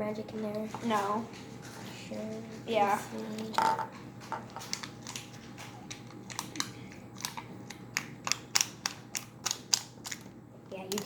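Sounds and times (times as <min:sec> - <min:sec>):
slime squished clicking and popping: 0:05.9 - 0:10.3.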